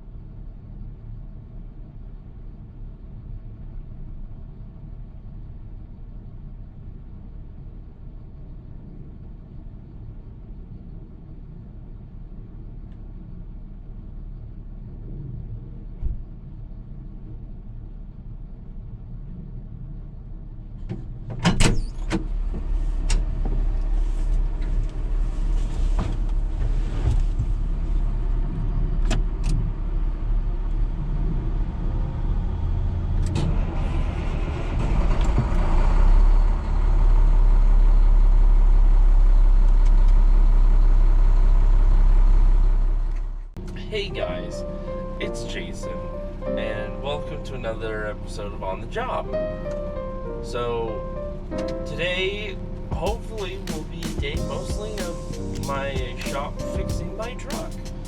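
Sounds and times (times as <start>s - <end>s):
vehicle engine rumbling: 0.0s - 58.0s.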